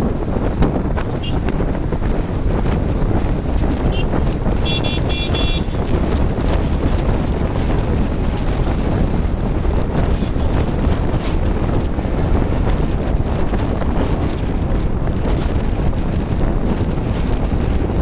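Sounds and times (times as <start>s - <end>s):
motorcycle rumble: 0.0s - 18.0s
wind buffeting microphone: 0.0s - 18.0s
vehicle horn beeps: 1.2s - 1.5s, 3.9s - 5.8s.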